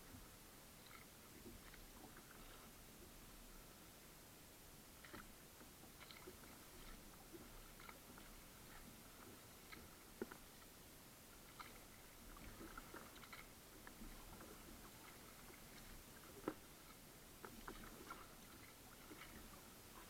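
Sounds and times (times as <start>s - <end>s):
paddle drips and splashes: 5.0s - 20.0s.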